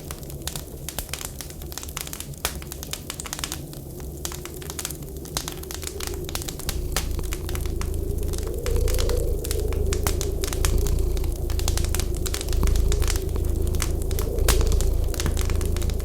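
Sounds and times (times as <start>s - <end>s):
wood fire crackling and popping: 0.0s - 16.0s
whistling wind: 4.0s - 16.0s
low rumble: 5.0s - 16.0s.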